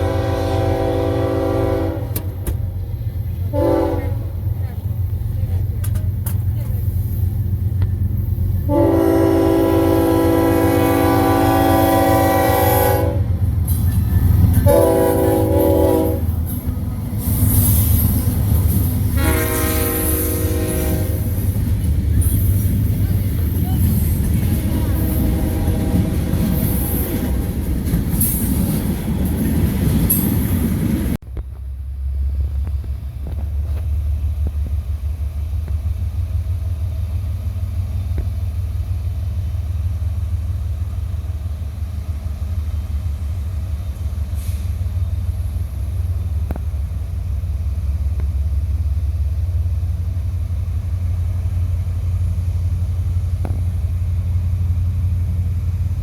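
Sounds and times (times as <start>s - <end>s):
train passing on rails: 0.0s - 56.0s
steady low rumble: 2.2s - 11.4s, 13.2s - 44.2s.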